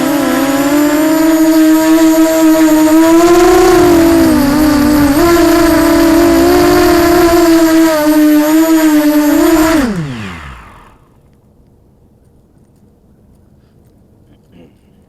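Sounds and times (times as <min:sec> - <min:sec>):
drone motors whining: 0:00.0 - 0:11.2.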